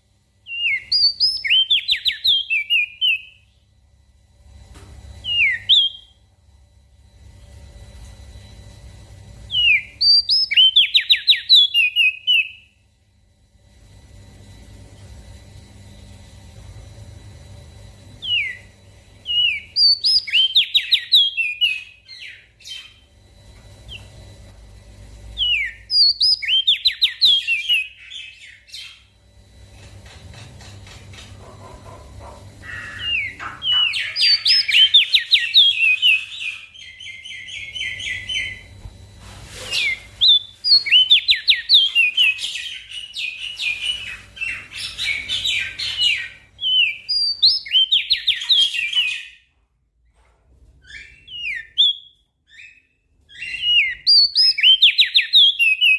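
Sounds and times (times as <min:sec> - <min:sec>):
songbird singing: 0:00.5 - 0:03.5, 0:09.5 - 0:12.7, 0:18.2 - 0:23.1, 0:25.4 - 0:29.2, 0:31.5 - 0:38.8.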